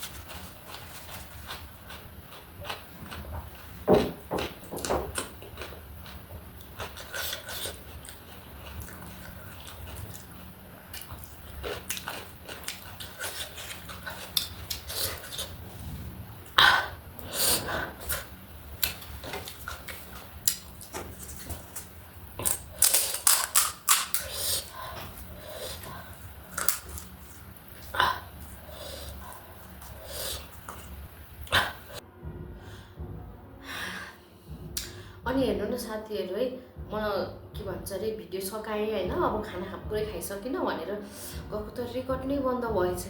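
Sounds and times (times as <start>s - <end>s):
crunching and chewing: 0.0s - 15.6s, 17.2s - 32.0s.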